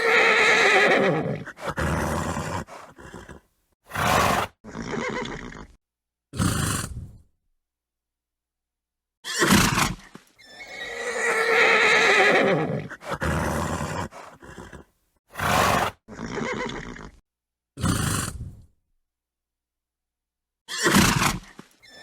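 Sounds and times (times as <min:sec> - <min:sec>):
horse snorting: 0:00.0 - 0:05.8, 0:06.4 - 0:07.2, 0:09.4 - 0:17.2, 0:17.8 - 0:18.7
horse whinnying: 0:00.0 - 0:05.8, 0:09.2 - 0:17.2.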